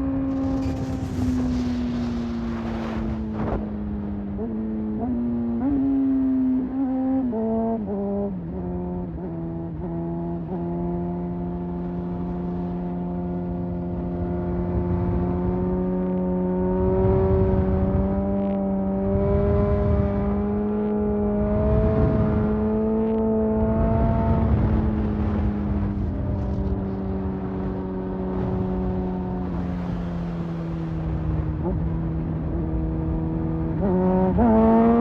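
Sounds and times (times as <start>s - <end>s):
wind noise gusts: 0.0s - 4.6s, 16.8s - 18.4s, 19.0s - 20.6s, 21.2s - 35.0s.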